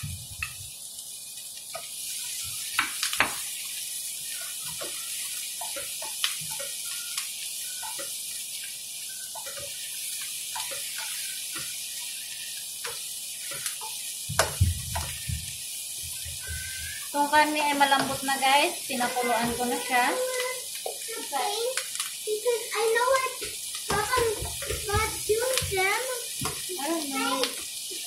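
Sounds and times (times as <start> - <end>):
food sizzling in a frying pan: 0.0 - 28.0
spatula scraping and tapping pan: 1.6 - 18.4, 23.1 - 27.7
sharp knock on pan: 14.3 - 15.1.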